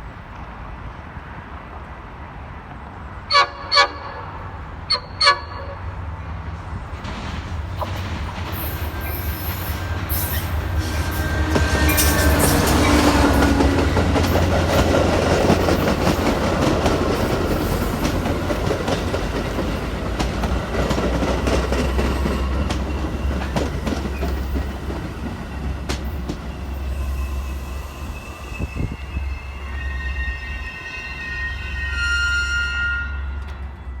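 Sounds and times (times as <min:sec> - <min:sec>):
train locomotive rumble: 0:00.0 - 0:34.0
wheels clacking over rail joints: 0:06.8 - 0:26.9.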